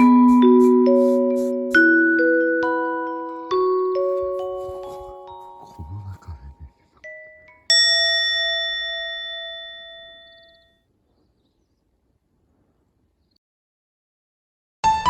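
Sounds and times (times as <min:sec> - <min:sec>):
chime ringing out: 0:07.0 - 0:10.8.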